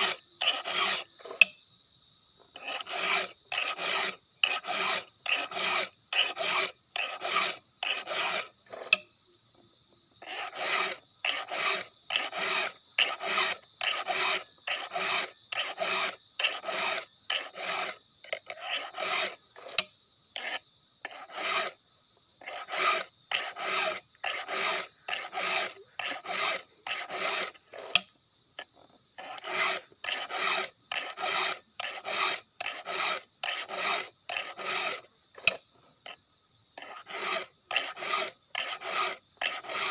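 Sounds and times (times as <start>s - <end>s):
file rasping on chainsaw chain: 0.0s - 1.5s, 2.6s - 9.1s, 10.2s - 21.8s, 22.4s - 36.2s, 36.8s - 39.9s.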